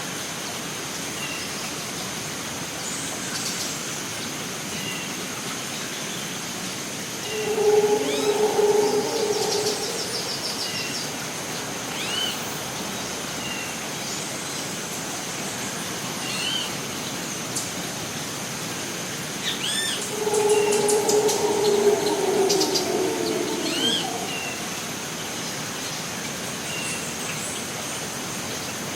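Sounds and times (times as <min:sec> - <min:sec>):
steady background hiss: 0:00.0 - 0:28.9
low hooting call: 0:07.2 - 0:11.3, 0:19.8 - 0:25.3.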